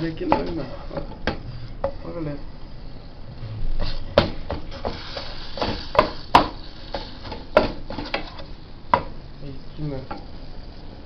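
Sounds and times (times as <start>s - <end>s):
wooden spoon knocking in a pan: 5.6s - 8.3s, 8.9s - 9.2s.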